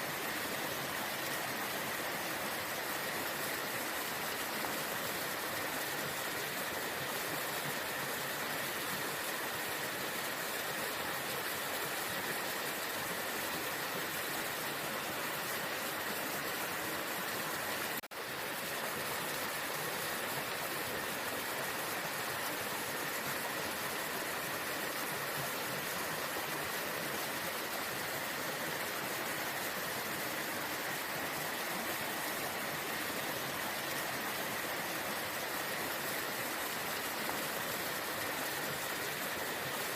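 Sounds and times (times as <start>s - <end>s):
waterfall rushing: 20.4s - 39.9s.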